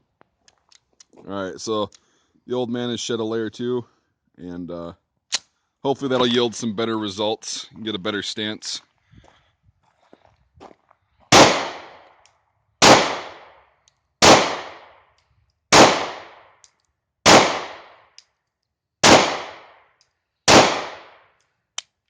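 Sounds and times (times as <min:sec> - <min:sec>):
pistol shots with echo: 0:11.3 - 0:12.0, 0:12.8 - 0:13.5, 0:14.2 - 0:14.9, 0:15.7 - 0:16.4, 0:17.2 - 0:18.0, 0:19.0 - 0:19.8, 0:20.5 - 0:21.3.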